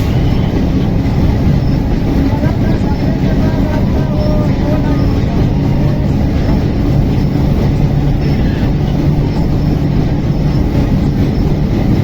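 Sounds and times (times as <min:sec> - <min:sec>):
train rumbling along track: 0:00.0 - 0:12.0.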